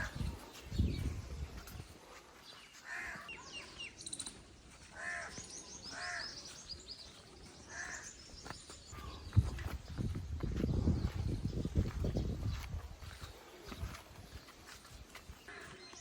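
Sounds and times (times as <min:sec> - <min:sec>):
small birds chirping: 0:00.0 - 0:16.0
crow-like caws: 0:02.8 - 0:03.3, 0:04.9 - 0:06.3, 0:07.7 - 0:08.1.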